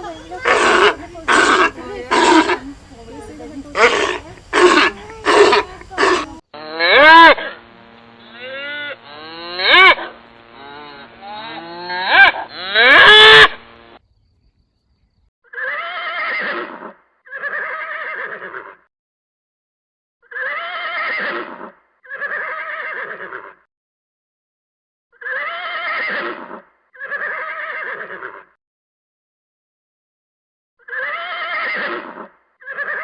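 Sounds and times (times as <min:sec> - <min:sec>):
gliding animal calls: 0:00.0 - 0:06.4, 0:08.4 - 0:13.6
rough drawn-out animal calls: 0:00.0 - 0:13.6, 0:25.2 - 0:28.6, 0:30.8 - 0:33.0.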